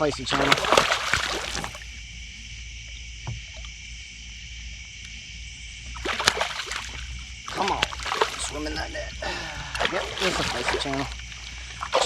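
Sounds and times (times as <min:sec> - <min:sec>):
fish splashing: 0:00.0 - 0:02.0, 0:05.8 - 0:12.0
low hum: 0:00.0 - 0:12.0
night insects chirring: 0:00.0 - 0:12.0.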